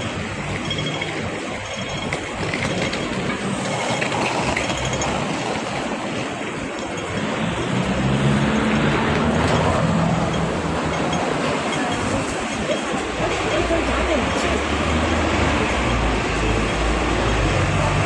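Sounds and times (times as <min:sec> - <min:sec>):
city street traffic: 0:00.0 - 0:18.0
vehicle engine hum approaching: 0:07.2 - 0:12.5.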